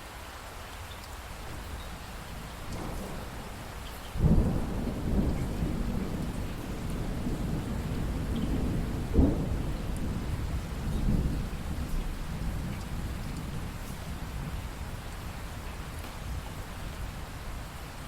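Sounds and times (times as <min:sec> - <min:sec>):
steady rain: 0:00.0 - 0:18.0
thunder rumble: 0:01.5 - 0:17.8
thunder crack: 0:02.6 - 0:14.5.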